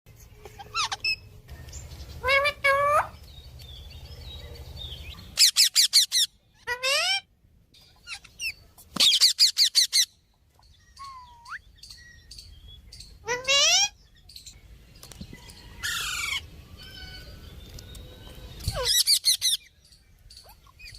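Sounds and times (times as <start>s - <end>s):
parrot calling: 0.4s - 1.4s, 2.2s - 3.2s, 5.2s - 7.3s, 13.1s - 14.0s.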